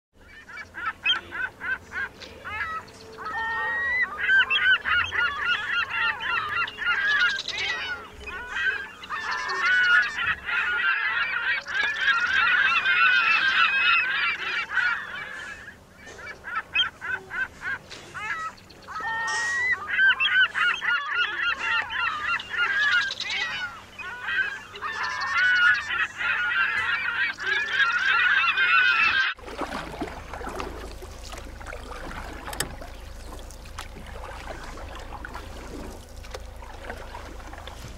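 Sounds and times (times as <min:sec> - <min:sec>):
flock of geese honking: 0:00.2 - 0:29.4.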